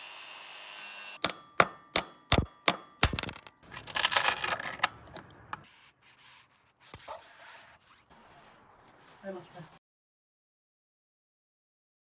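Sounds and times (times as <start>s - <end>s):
sharp knocks: 1.2s - 3.6s.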